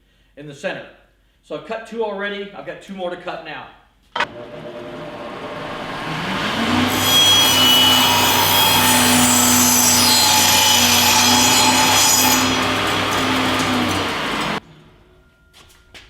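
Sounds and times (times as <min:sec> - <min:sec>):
power saw motor running: 0:04.2 - 0:14.6
saw blade cutting wood: 0:04.2 - 0:14.6.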